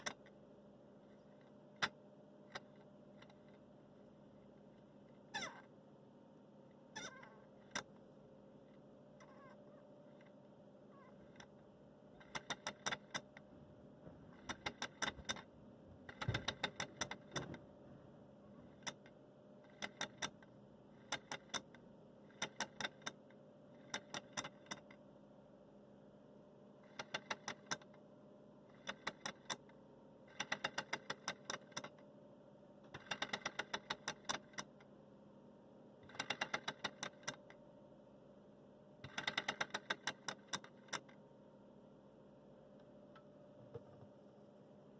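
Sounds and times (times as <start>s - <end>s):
faint steady hum: 0.0s - 44.9s
rapid mechanical clicking: 12.2s - 13.4s, 14.3s - 15.5s, 16.1s - 17.6s, 18.7s - 25.0s, 26.8s - 28.0s, 28.7s - 32.0s, 32.9s - 34.8s, 36.0s - 37.6s, 39.0s - 41.2s.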